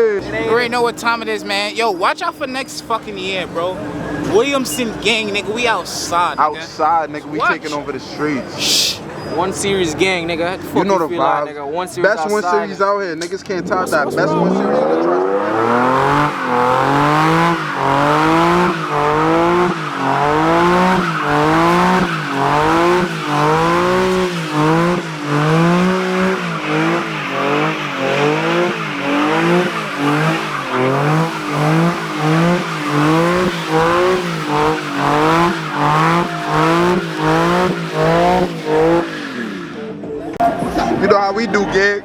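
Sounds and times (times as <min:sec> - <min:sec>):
car engine revving: 0:00.0 - 0:06.4, 0:13.7 - 0:41.0.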